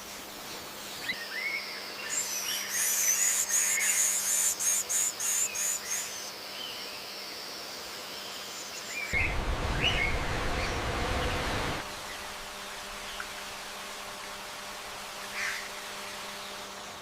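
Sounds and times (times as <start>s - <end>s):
birds chirping: 9.1s - 13.5s.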